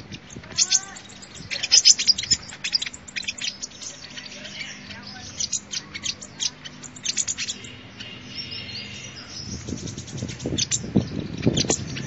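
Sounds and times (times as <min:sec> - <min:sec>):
bird singing chirps and trills: 0:00.0 - 0:12.0.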